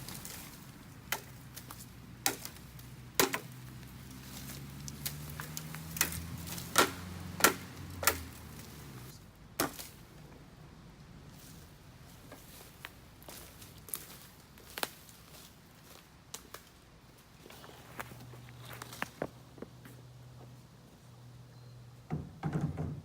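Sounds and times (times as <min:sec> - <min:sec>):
blade chopping bamboo: 0:00.0 - 0:10.0.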